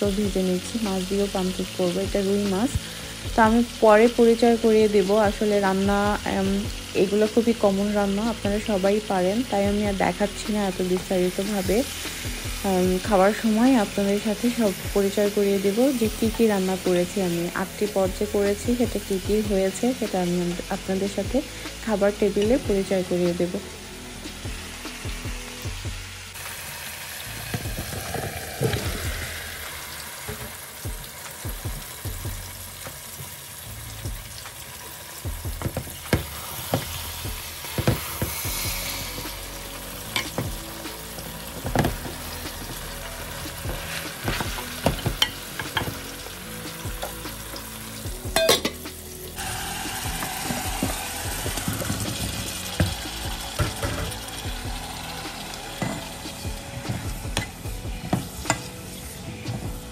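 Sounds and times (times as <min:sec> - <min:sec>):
meat and vegetables sizzling: 0:00.0 - 0:59.9
spatula knocking and scraping pot: 0:41.6 - 0:42.9.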